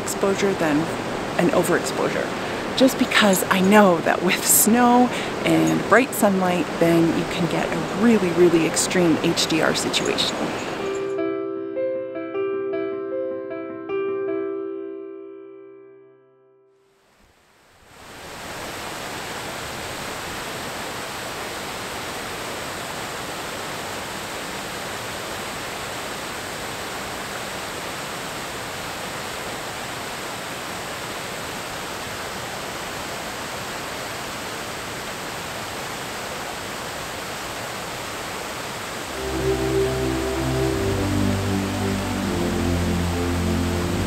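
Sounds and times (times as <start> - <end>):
river water rushing over rocks: 0.1 - 11.1.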